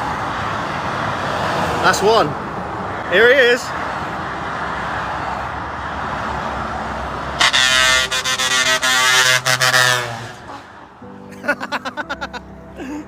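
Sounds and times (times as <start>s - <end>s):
motorway traffic noise: 0.0s - 13.0s
lorry air horn: 7.4s - 10.7s.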